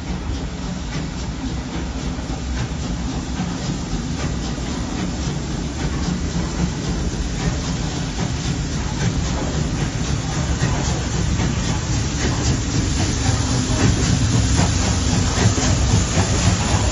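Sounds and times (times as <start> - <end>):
steam locomotive beats: 0.0 - 16.9
train rumbling: 0.0 - 16.9.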